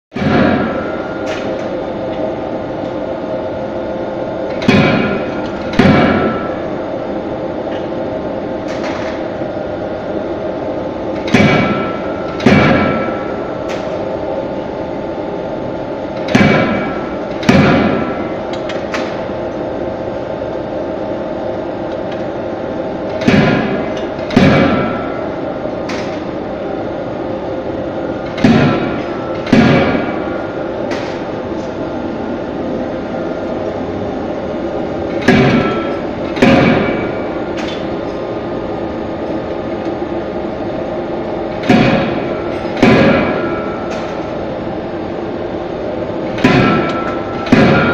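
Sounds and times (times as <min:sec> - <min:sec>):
heavy ringing hammer blows: 0:00.1 - 0:01.8, 0:04.6 - 0:06.8, 0:11.1 - 0:14.1, 0:28.1 - 0:31.7, 0:35.0 - 0:38.4, 0:41.6 - 0:44.5, 0:46.1 - 0:47.9
steady machine hum: 0:00.1 - 0:47.9.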